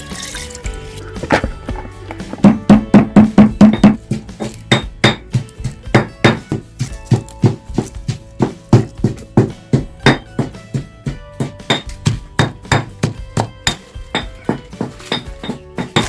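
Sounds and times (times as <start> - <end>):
faint music: 0.0 - 16.0
hard knocks: 1.3 - 5.3.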